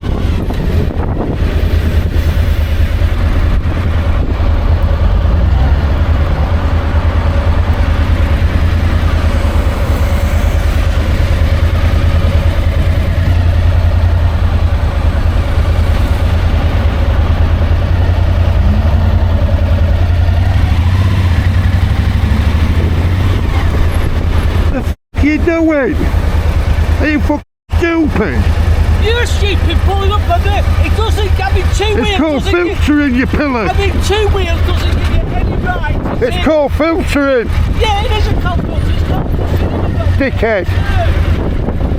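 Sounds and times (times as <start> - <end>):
wind rumble on microphone: 0.0 - 25.0, 28.5 - 41.9
motorcycle engine running: 0.0 - 41.9.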